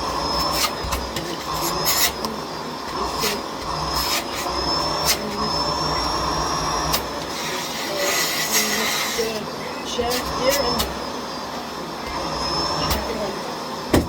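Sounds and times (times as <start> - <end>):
vacuum cleaner running with whine: 0.0 - 14.0
vacuum floor head knocking: 0.7 - 1.4.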